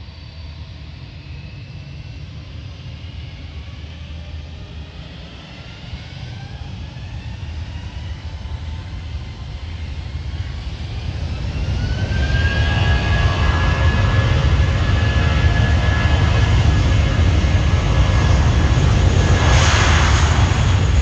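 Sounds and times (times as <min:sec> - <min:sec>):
jet engines spooling up: 0:04.6 - 0:21.0.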